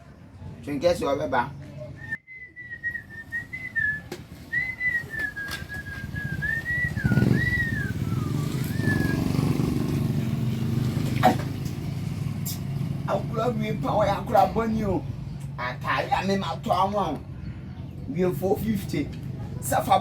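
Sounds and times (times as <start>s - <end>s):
vehicle engine rumble: 1.6s - 20.0s
person whistling a tune: 2.0s - 9.4s.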